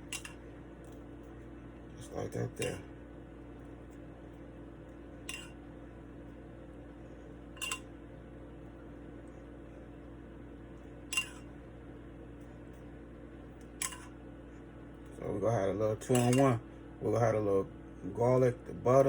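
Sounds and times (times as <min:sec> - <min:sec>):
steady low hum: 0:00.0 - 0:19.0
utensil clinking on cookware: 0:07.6 - 0:07.9, 0:16.0 - 0:16.6.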